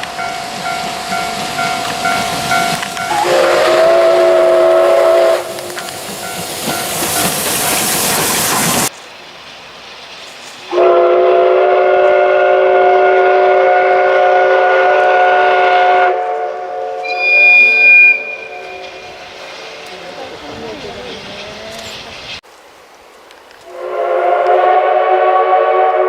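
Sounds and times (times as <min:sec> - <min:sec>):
steam locomotive whistle: 0:00.0 - 0:06.1, 0:10.7 - 0:20.0, 0:23.6 - 0:26.0
loud hiss of steam: 0:00.0 - 0:22.5, 0:23.6 - 0:26.0
train noise: 0:00.0 - 0:26.0.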